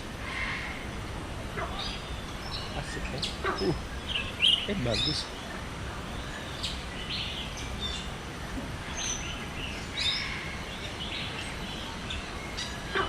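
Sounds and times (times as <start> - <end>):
birds chirping and whistling: 1.7 - 5.5.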